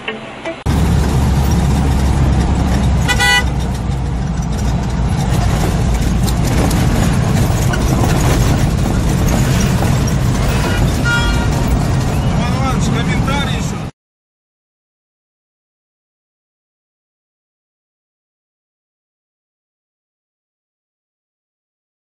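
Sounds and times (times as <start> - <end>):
car road and engine rumble: 0.0 - 13.9
car horn honk: 3.0 - 3.7, 10.5 - 11.7.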